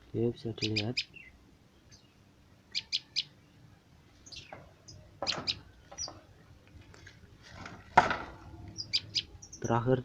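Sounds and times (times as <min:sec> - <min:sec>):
small bird chirping: 0:00.4 - 0:06.6, 0:08.5 - 0:10.0.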